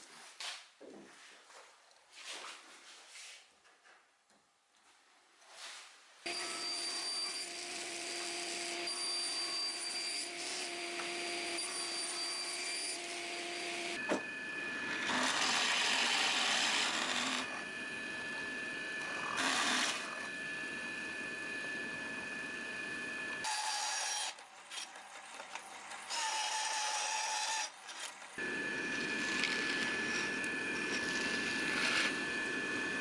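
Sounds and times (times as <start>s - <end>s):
power tool working on wood: 6.3s - 24.9s, 26.0s - 27.8s, 28.4s - 33.0s.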